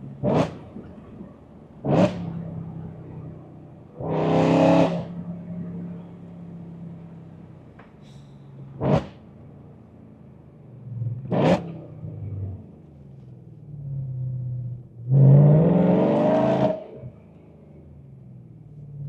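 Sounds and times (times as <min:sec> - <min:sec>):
car engine revving and accelerating: 0:00.0 - 0:01.2, 0:01.8 - 0:03.3, 0:03.9 - 0:06.2, 0:08.8 - 0:09.2, 0:11.0 - 0:12.7, 0:14.0 - 0:17.2.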